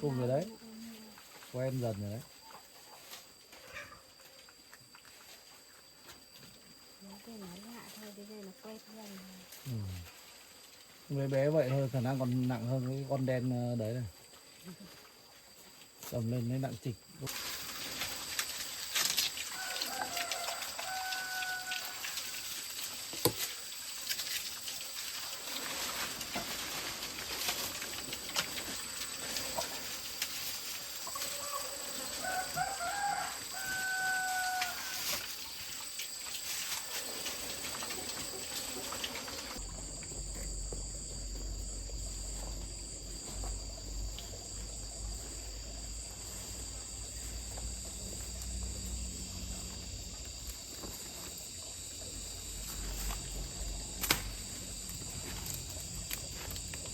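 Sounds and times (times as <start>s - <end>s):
rooster crowing: 19.4s - 22.5s, 31.1s - 35.2s
low steady rumble: 39.6s - 50.7s.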